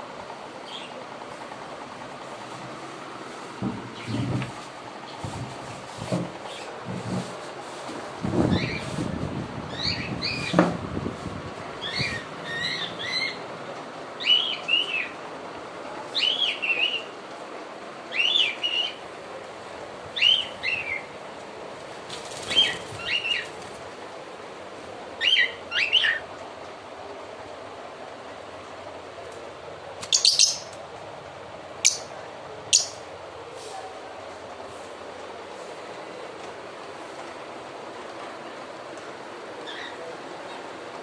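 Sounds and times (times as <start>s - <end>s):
cage bird chirping: 0.6s - 1.0s, 8.4s - 9.0s, 9.7s - 10.6s, 11.8s - 13.5s, 14.2s - 15.2s, 16.1s - 17.2s, 18.1s - 19.0s, 20.2s - 21.2s, 22.3s - 23.6s, 25.2s - 26.3s, 30.0s - 30.8s, 31.8s - 33.1s, 39.6s - 40.1s.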